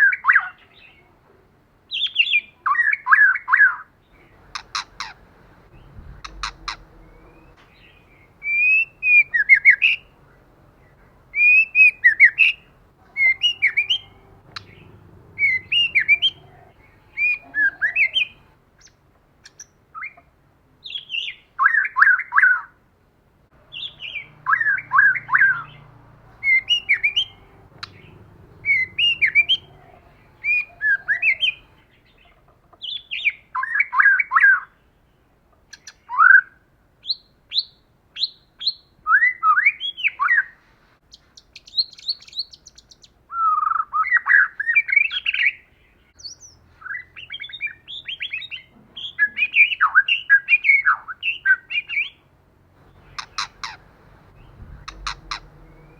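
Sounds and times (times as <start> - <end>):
songbird whistled phrases: 5.8 - 10.1, 11.4 - 18.4, 23.7 - 25.8, 26.4 - 31.7, 41.6 - 45.6.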